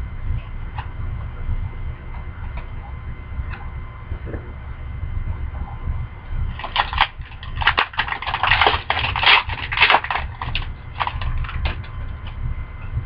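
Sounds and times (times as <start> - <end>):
low steady hum: 0.0 - 13.0
wrapper and cards crinkling: 6.6 - 11.9.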